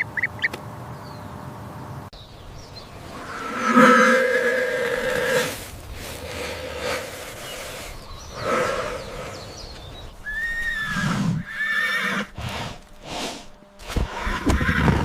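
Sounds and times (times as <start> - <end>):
animal calling in pitched cries: 10.2 - 12.3.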